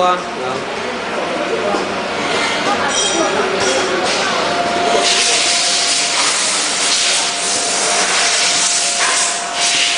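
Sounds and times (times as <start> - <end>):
soldering machine hissing: 4.8 - 9.9.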